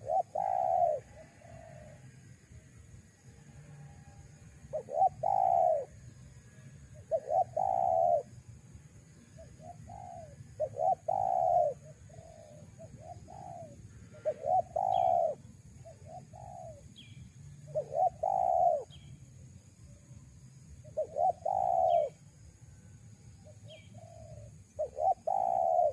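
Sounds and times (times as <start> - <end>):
doves cooing: 0.0 - 2.0, 4.7 - 5.9, 7.0 - 8.3, 9.5 - 16.8, 17.7 - 18.9, 21.0 - 22.2, 23.7 - 25.9
small bird chirping: 4.7 - 5.9, 7.0 - 8.3, 9.3 - 19.3, 20.7 - 22.2, 23.4 - 25.9.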